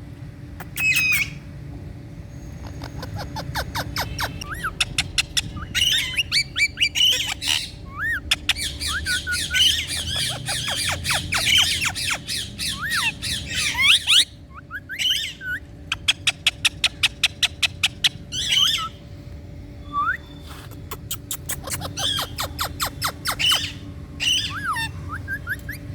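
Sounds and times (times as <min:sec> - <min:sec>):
parrot sharp clicks: 0:00.6 - 0:01.3
parrot chattering and squawking: 0:00.6 - 0:01.4, 0:02.6 - 0:19.0, 0:20.4 - 0:25.9.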